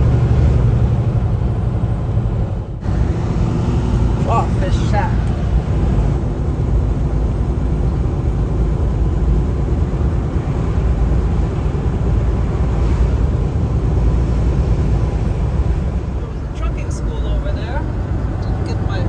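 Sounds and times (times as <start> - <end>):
truck engine and road noise: 0.0 - 19.0.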